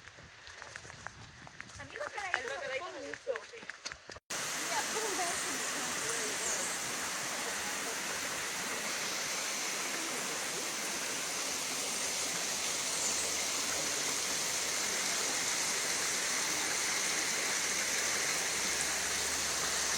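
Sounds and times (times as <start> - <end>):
rushing water hiss: 4.3 - 19.9.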